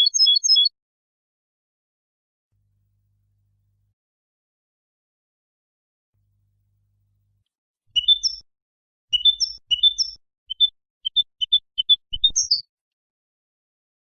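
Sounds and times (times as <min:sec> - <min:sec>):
goldfinch twittering song: 0:00.0 - 0:00.7, 0:08.0 - 0:08.4, 0:09.1 - 0:12.6.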